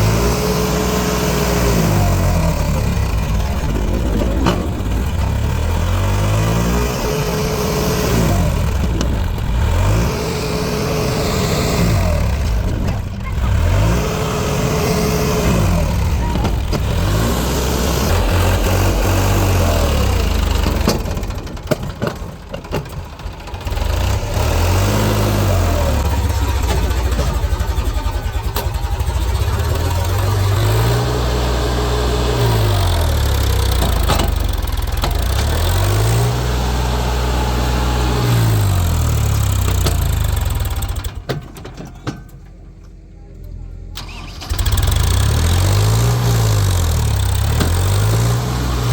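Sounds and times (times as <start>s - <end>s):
vehicle engine revving: 0.0s - 21.7s, 23.6s - 41.2s, 44.0s - 48.9s.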